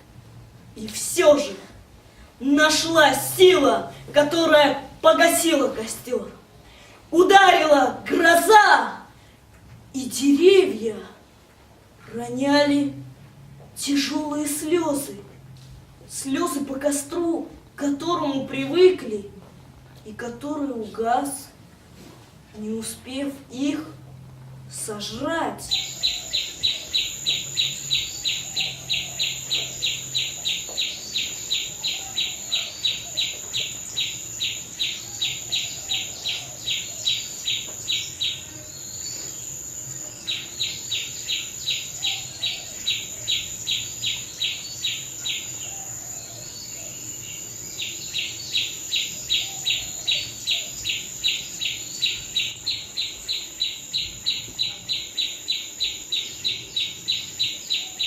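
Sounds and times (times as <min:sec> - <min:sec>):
rhythmic high chirping: 0:25.8 - 0:44.9.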